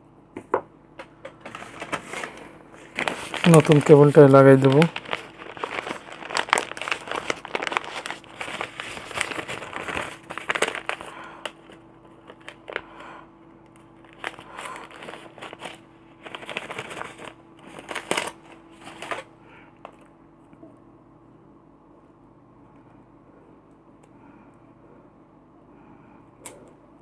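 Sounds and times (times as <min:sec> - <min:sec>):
cable crinkling and rustling: 0:01.2 - 0:13.1, 0:13.7 - 0:20.6.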